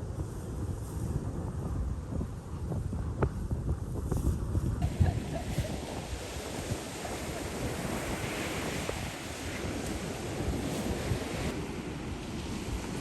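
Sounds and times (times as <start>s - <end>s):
wind buffeting microphone: 0.0s - 13.0s
sea surf washing ashore: 4.8s - 13.0s.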